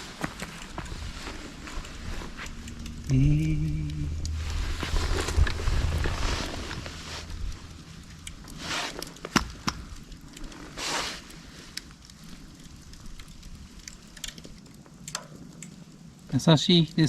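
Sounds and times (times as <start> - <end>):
bamboo fire crackling and popping: 0.0 - 17.0
low rumble: 0.7 - 8.7.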